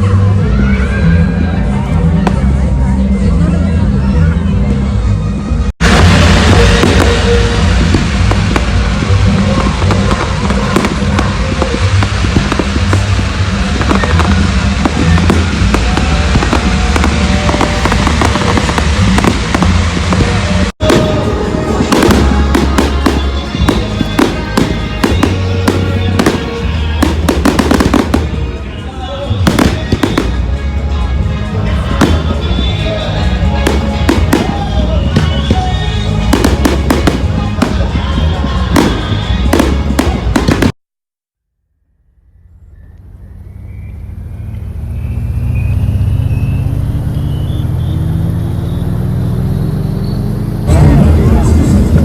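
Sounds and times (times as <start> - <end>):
vehicle engine humming: 0.0 - 40.8, 41.8 - 52.0
fireworks bangs and cracks: 1.7 - 2.8, 5.8 - 40.8.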